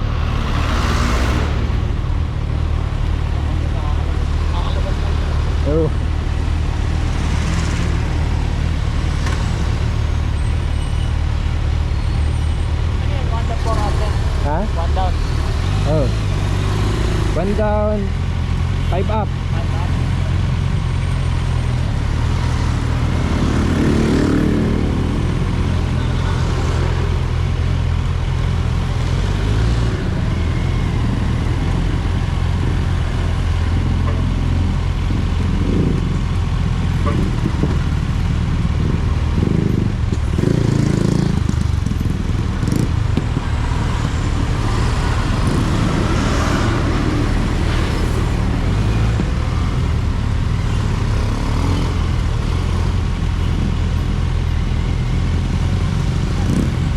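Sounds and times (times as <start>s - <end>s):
motorcycle engine running: 0.0s - 56.9s
road noise: 0.0s - 56.9s.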